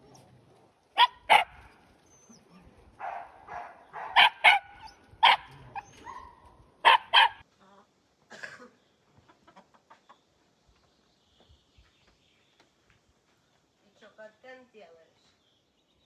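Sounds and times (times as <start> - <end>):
dog barking: 1.0 - 1.8, 3.0 - 7.4.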